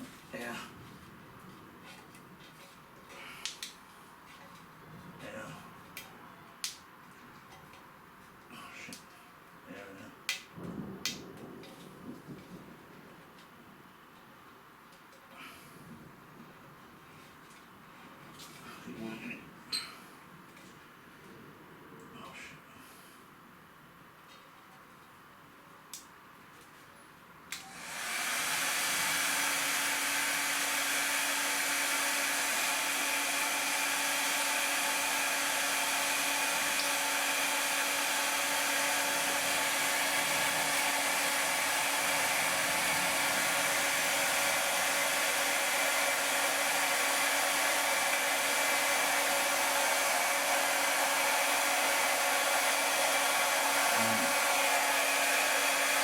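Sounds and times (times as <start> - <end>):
hot-air blower running: 27.5 - 56.0.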